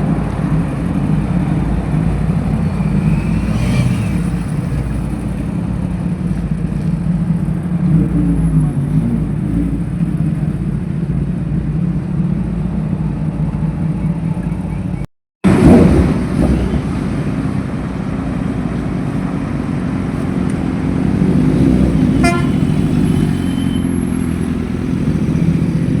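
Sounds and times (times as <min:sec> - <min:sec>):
motorcycle engines running: 0:00.0 - 0:26.0
short horn toot: 0:22.1 - 0:24.0.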